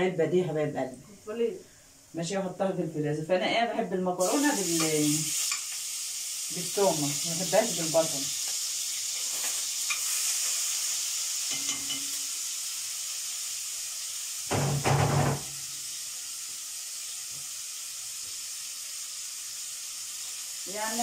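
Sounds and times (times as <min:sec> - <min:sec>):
garlic sizzling in hot oil: 0:03.6 - 0:21.0
loud knock: 0:14.5 - 0:15.6.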